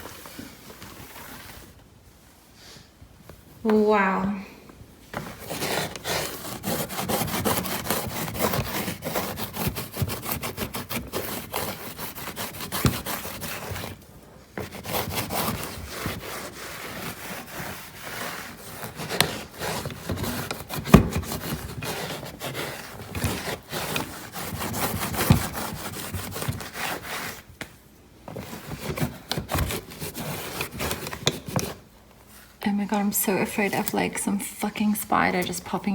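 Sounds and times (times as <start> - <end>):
cloth scrubbing a hard surface: 5.1 - 27.5, 28.3 - 32.7.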